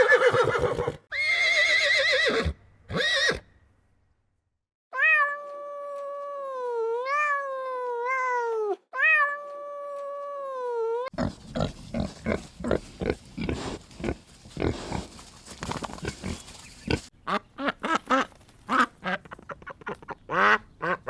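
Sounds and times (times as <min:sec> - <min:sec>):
cat meowing: 0:05.0 - 0:10.4.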